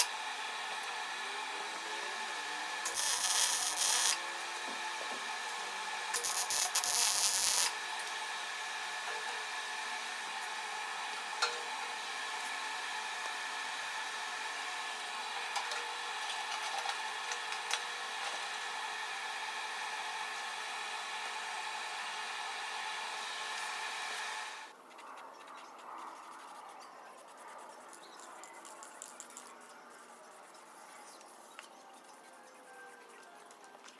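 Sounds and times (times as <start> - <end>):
small electric motor whirring: 0.0 - 24.8.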